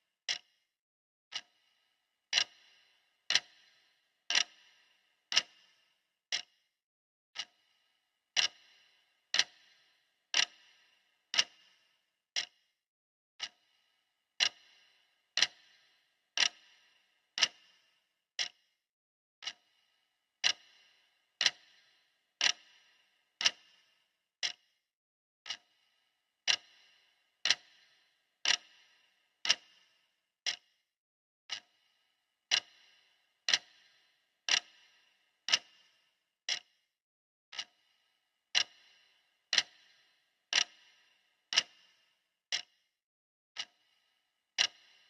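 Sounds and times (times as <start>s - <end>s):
clock ticking: 0.3s - 0.5s, 1.3s - 1.7s, 2.3s - 6.5s, 7.4s - 7.6s, 8.3s - 11.8s, 13.4s - 13.7s, 14.4s - 18.6s, 19.4s - 19.7s, 20.4s - 24.7s, 25.4s - 25.8s, 26.4s - 30.8s, 31.5s - 31.9s, 32.5s - 36.8s, 37.5s - 42.8s, 43.6s - 44.0s, 44.6s - 45.0s.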